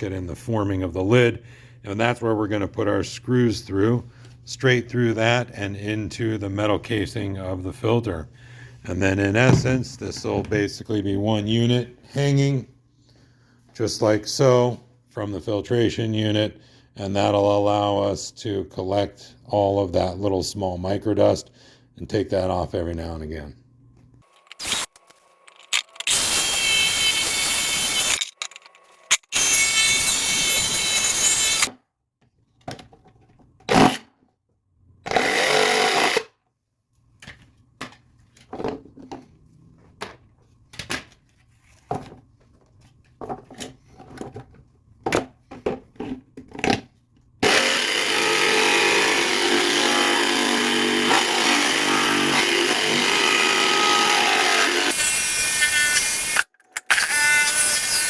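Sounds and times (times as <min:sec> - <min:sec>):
knocks and handling noises: 0:09.3 - 0:10.6, 0:37.0 - 0:47.2
power tool cutting plastic: 0:24.3 - 0:31.7, 0:47.4 - 0:58.0.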